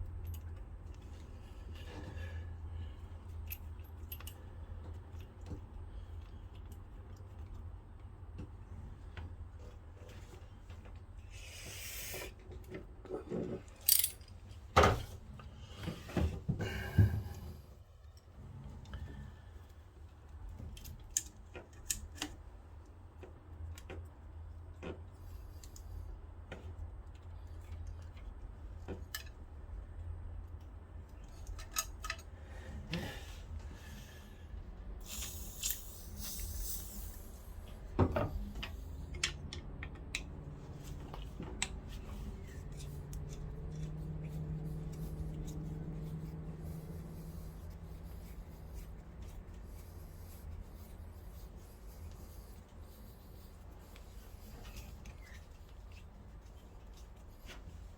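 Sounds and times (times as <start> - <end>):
faint steady hum: 0.0 - 57.9
metal hand tools clinking: 13.8 - 14.4.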